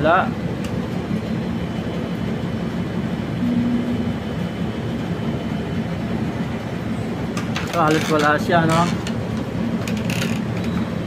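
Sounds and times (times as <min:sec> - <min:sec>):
low background rumble: 0:00.4 - 0:10.6
brief low hum: 0:03.4 - 0:04.7.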